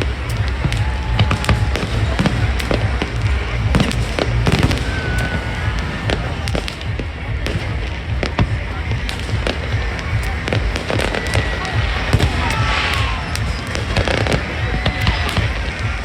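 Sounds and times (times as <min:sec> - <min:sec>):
deep continuous rumble: 0:00.0 - 0:16.0
firework bangs and crackles: 0:00.0 - 0:16.0.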